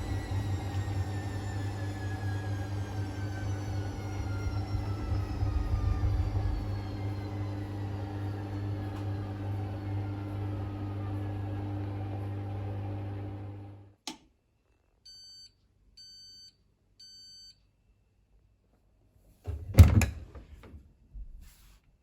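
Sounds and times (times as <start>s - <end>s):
washing machine motor hum: 0.0s - 13.9s, 19.5s - 20.4s.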